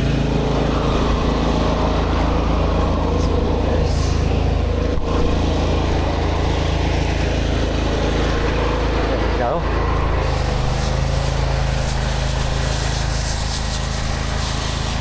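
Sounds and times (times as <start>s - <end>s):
pressure washer engine running: 0.0s - 15.0s
water spray hissing: 10.0s - 15.0s.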